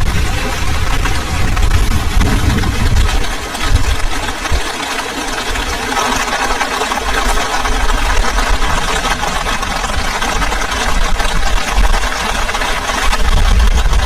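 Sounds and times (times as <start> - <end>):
wind gusts on microphone: 0.0 - 4.6
heavy rain falling: 0.0 - 14.0.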